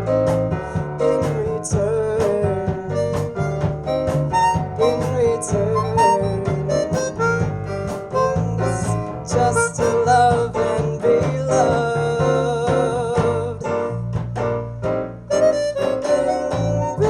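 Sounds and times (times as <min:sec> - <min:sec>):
wavering lead melody: 0:15.3 - 0:17.0.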